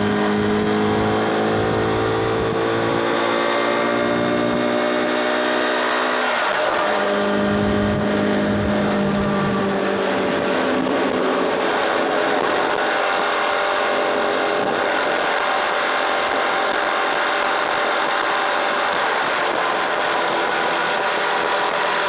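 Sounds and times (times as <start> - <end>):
motorcycle engine running: 0.0 - 22.0
wind rush: 6.9 - 13.6.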